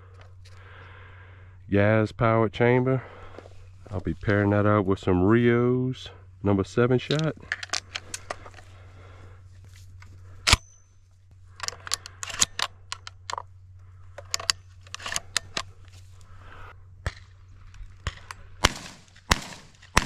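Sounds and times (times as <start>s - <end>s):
shotgun shots: 18.0s - 20.0s.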